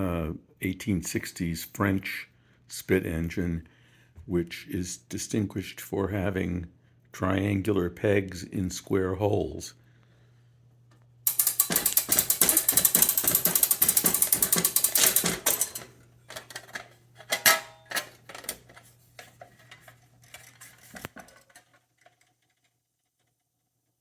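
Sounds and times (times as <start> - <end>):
clockwork gears clicking: 11.3 - 16.6
scattered clicks and knocks: 11.3 - 22.4.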